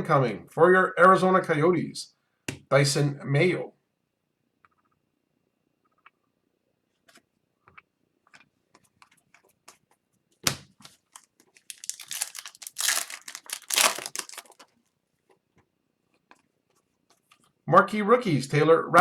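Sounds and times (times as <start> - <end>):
foil wrapper crackling and tearing: 11.1 - 14.7.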